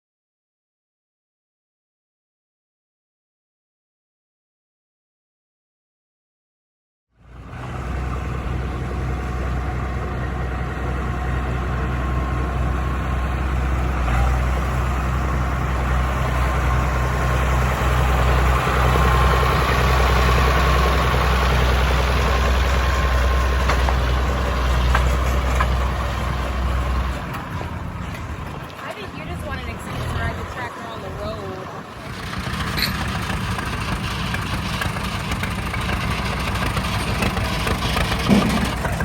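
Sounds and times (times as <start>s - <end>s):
tractor engine idling: 7.3s - 39.0s.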